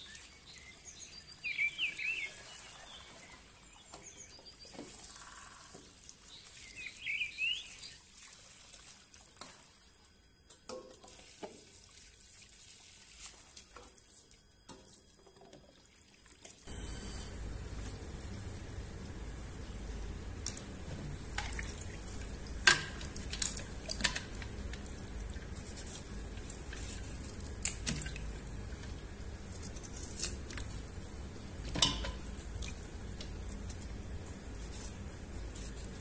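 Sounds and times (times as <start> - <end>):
small bird chirping: 0.0 - 5.6, 6.4 - 8.0
low steady rumble: 16.7 - 36.0.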